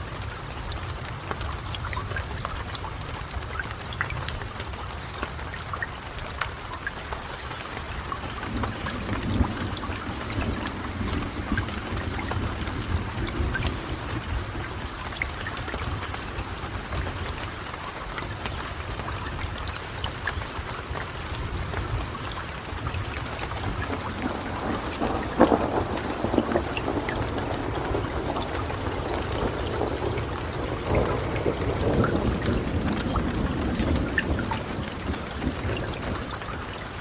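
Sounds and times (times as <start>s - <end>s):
steady rain falling: 0.0s - 37.0s
thunder rumbling: 7.8s - 17.6s, 20.6s - 37.0s
thunderclap: 8.4s - 15.0s, 22.8s - 37.0s.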